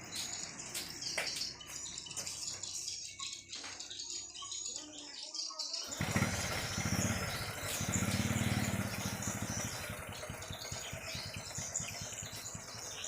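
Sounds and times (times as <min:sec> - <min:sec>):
swiftlets chirping: 0:05.8 - 0:13.0.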